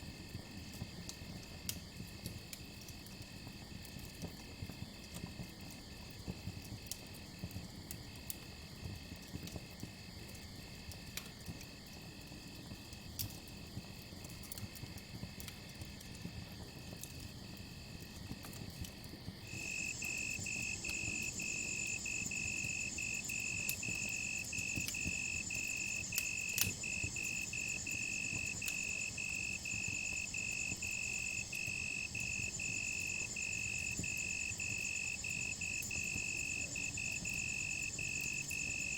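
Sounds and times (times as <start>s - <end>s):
high continuous insect trill: 0.0s - 38.9s
campfire crackling: 0.1s - 38.9s
crickets chirping: 19.4s - 38.9s.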